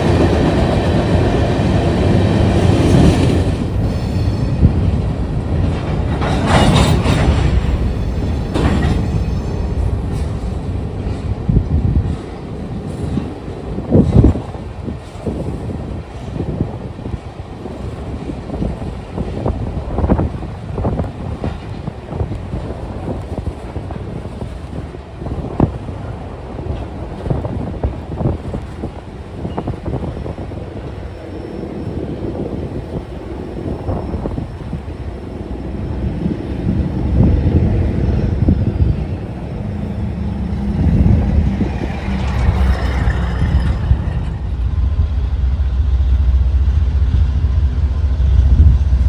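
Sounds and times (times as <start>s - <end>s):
train wheels knocking: 0.0s - 12.3s
train rumbling on track: 0.0s - 49.0s
wind buffeting microphone: 0.0s - 49.0s.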